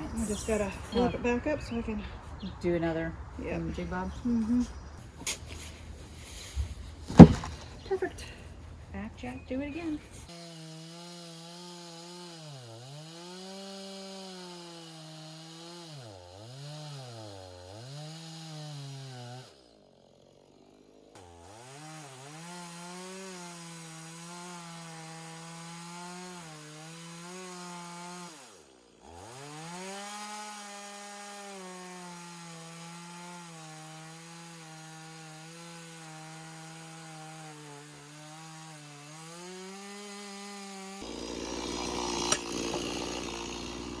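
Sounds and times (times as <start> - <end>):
chainsaw bogging under load: 5.2 - 7.8, 40.5 - 44.0.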